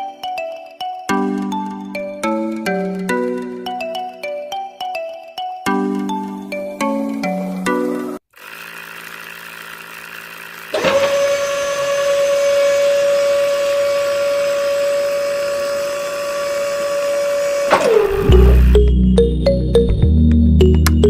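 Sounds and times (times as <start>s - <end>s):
music: 0.0s - 8.2s, 17.9s - 21.0s
small electric motor whining: 8.3s - 18.8s.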